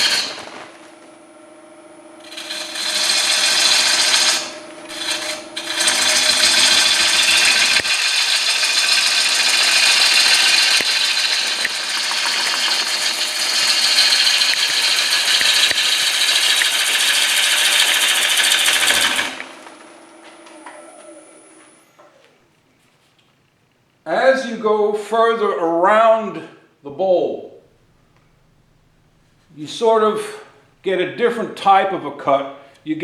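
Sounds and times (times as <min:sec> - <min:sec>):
lathe tool cutting wet wood: 0:00.0 - 0:21.8
lathe motor humming: 0:00.0 - 0:22.3.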